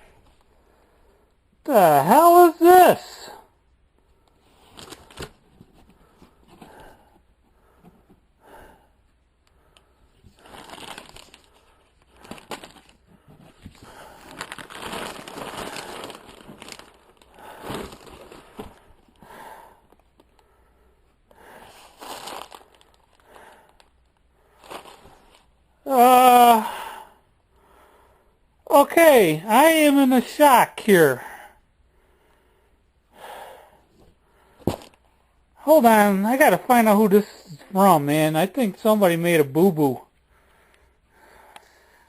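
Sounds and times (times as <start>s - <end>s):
packaging rustling and crinkling: 4.5s - 6.7s, 10.2s - 19.2s, 21.7s - 23.9s, 24.6s - 25.5s, 34.6s - 35.0s.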